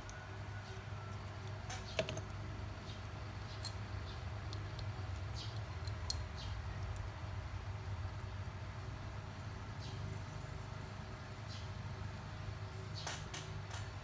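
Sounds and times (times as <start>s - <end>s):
small metal tools clicking: 4.5s - 7.1s.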